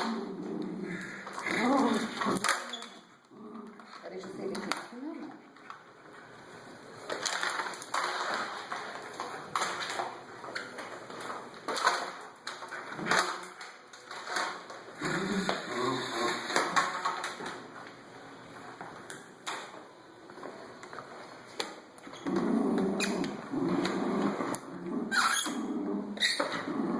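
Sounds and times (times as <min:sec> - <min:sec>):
dog growling: 0:00.0 - 0:02.6, 0:03.3 - 0:04.0, 0:15.0 - 0:16.9, 0:22.2 - 0:26.9.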